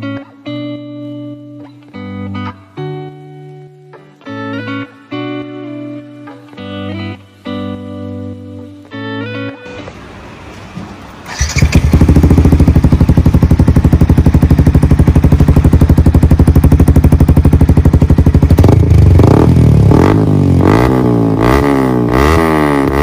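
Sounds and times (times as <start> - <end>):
motorcycle engine idling and revving: 11.2 - 23.0.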